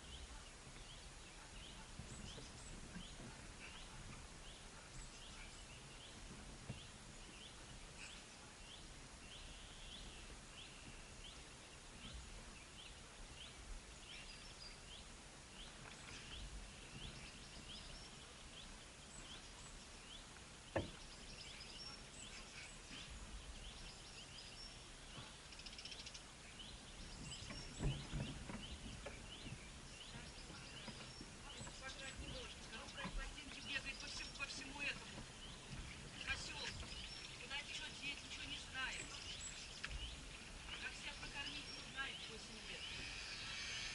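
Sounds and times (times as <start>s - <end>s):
birds chirping faintly: 0.0s - 43.9s.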